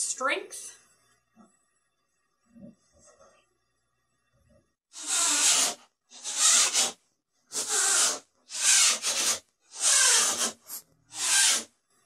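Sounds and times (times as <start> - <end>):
rhythmic hissing rubbing strokes: 7.6 - 11.6.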